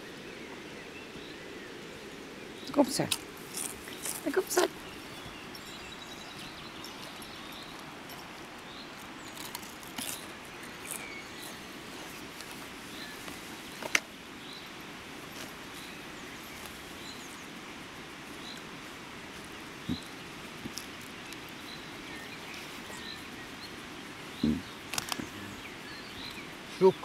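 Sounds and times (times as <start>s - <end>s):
steady background hiss: 0.0s - 27.0s
small bird chirping: 2.5s - 14.7s, 19.4s - 27.0s
sharp clicks and crackles: 24.9s - 25.3s.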